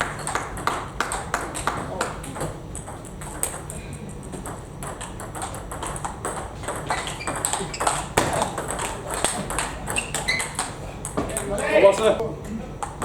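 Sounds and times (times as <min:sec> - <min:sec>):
table tennis ball clicking: 0:04.4 - 0:11.5.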